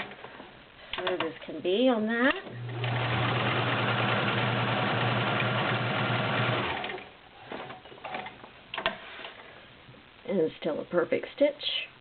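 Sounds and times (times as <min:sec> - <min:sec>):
sewing machine running: 0:02.5 - 0:07.1.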